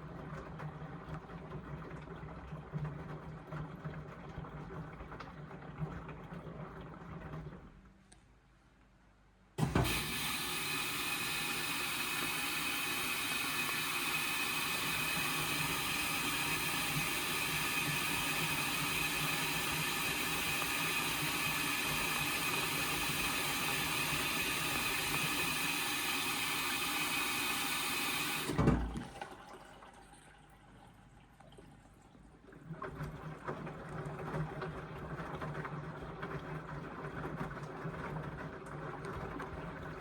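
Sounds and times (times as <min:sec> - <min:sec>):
valve shutting off thud: 0:09.6 - 0:10.5
water hissing into washing machine: 0:09.6 - 0:31.7, 0:32.4 - 0:40.0.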